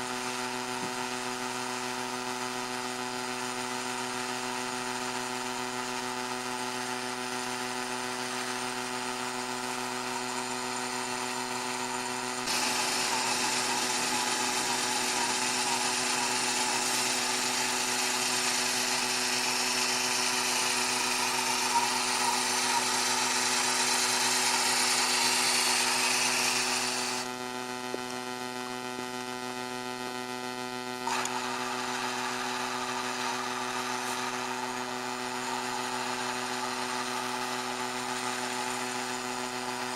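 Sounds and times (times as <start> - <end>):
small motor humming: 0.0 - 28.0, 29.5 - 39.9.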